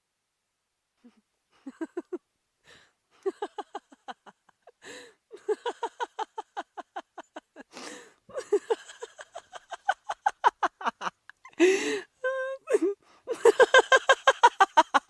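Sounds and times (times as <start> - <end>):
person laughing: 1.0 - 2.2, 3.2 - 15.0
gasping in-breath: 4.8 - 5.2, 7.7 - 8.2, 11.6 - 12.2.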